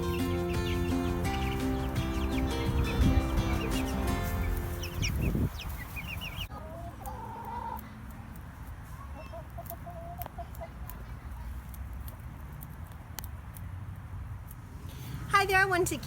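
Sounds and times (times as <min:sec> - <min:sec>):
music: 0:00.0 - 0:05.5
hens drawn-out clucking calls: 0:00.0 - 0:08.0, 0:09.1 - 0:10.8
chickens clucking: 0:00.0 - 0:13.2.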